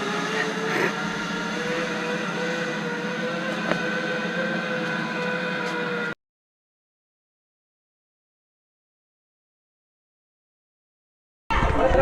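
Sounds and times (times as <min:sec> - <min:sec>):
zipline pulleys rolling on cable: 0:00.0 - 0:06.2.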